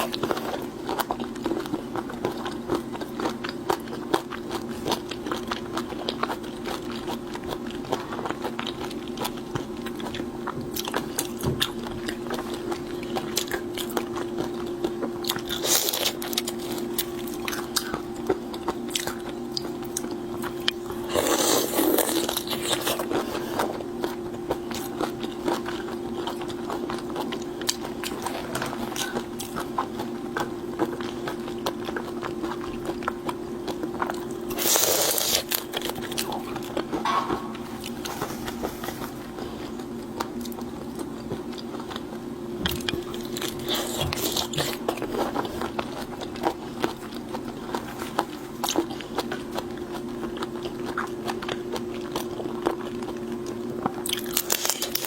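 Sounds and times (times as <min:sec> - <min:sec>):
chewing and crunching seafood: 0:00.0 - 0:55.0
low hum: 0:09.8 - 0:46.5.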